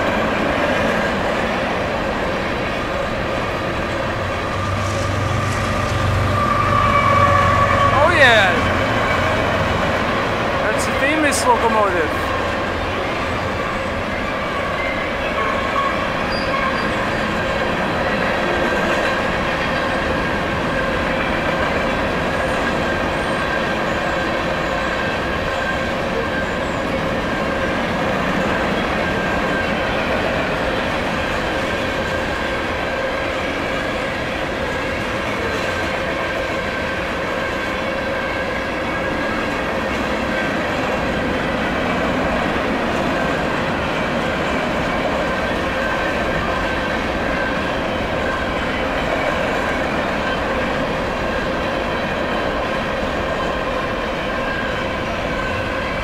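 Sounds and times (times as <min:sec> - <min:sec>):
train wheels rumbling on rails: 0:00.0 - 0:56.0
high-pitched wheel squeal: 0:04.5 - 0:08.1, 0:14.6 - 0:17.2.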